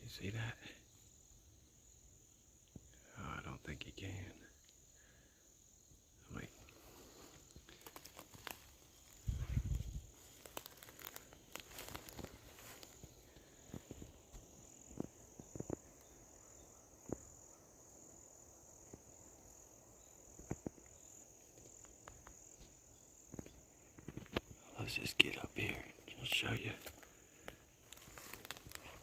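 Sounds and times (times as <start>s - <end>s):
high insect drone: 0.0s - 29.0s
leaves and twigs crackling underfoot: 6.3s - 16.4s, 19.5s - 29.0s.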